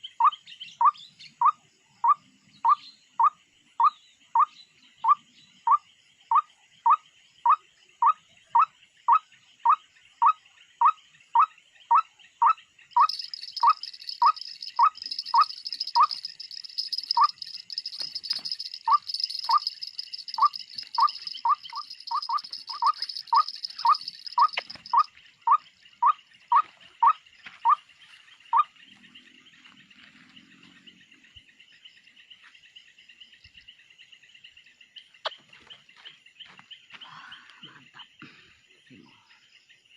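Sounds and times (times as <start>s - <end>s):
high drone of insects: 13.0s - 35.0s.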